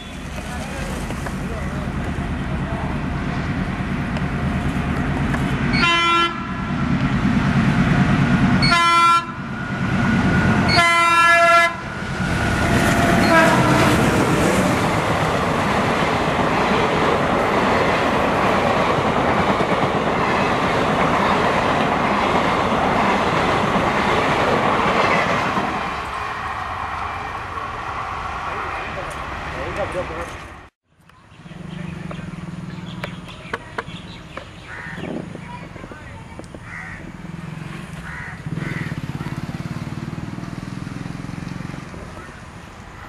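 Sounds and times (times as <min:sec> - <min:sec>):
diesel locomotive engine running: 0:00.0 - 0:30.7, 0:31.4 - 0:43.0
train coaches rolling past: 0:00.0 - 0:43.0
multi-tone train horn: 0:05.7 - 0:06.7, 0:08.6 - 0:14.2.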